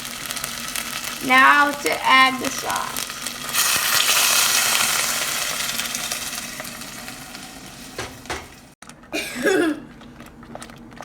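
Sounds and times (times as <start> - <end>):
sauce sizzling in hot pan: 0.0 - 8.8
knocks on pan: 8.0 - 8.6.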